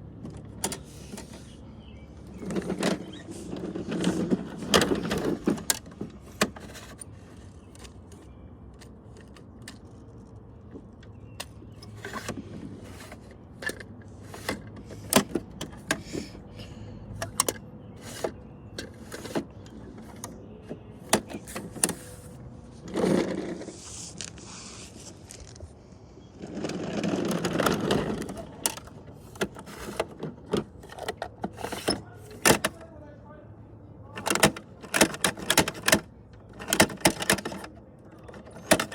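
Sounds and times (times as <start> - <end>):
plastic toy clicks and knocks: 26.7 - 32.8, 34.2 - 38.9.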